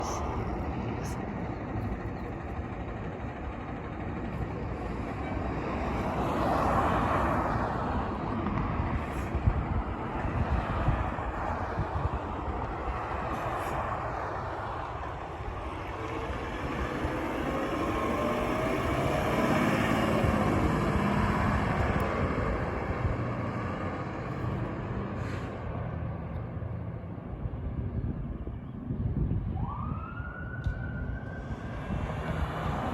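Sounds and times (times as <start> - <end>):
engine and road rumble: 0.0 - 32.9
fire engine siren: 29.2 - 32.9.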